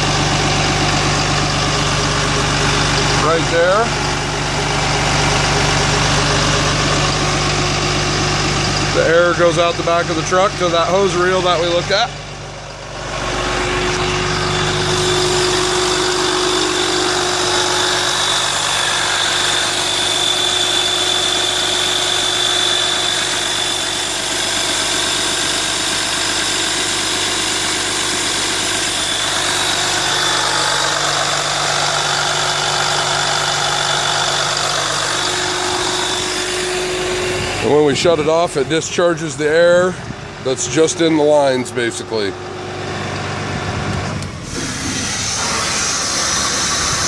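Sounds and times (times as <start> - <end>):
truck engine idling: 0.0 - 47.0
air compressor hiss and whine: 8.9 - 43.2, 43.9 - 47.0.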